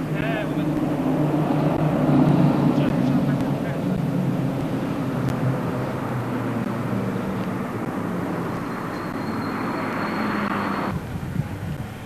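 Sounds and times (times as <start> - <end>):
locomotive engine drone: 0.0 - 12.0.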